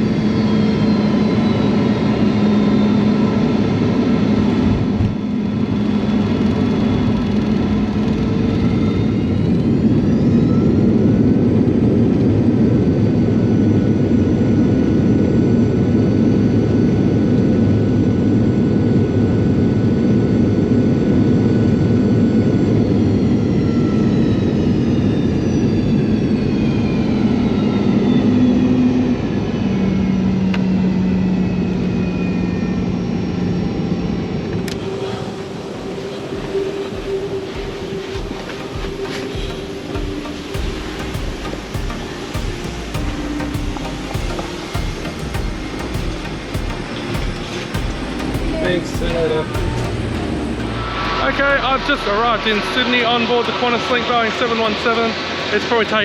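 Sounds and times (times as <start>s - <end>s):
jet engines whining: 0.0s - 56.0s
loud cabin air rush: 33.5s - 56.0s.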